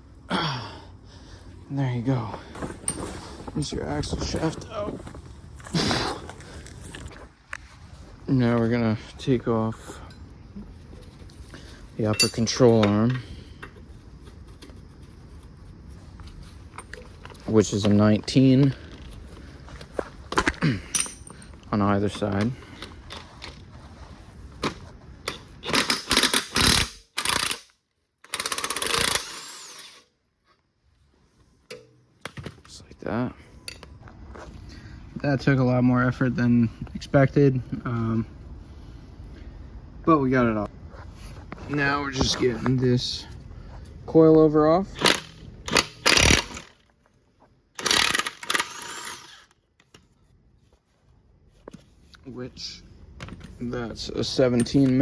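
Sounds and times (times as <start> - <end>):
impact wrench bursts: 25.3 - 30.0, 44.9 - 46.8, 47.8 - 49.6.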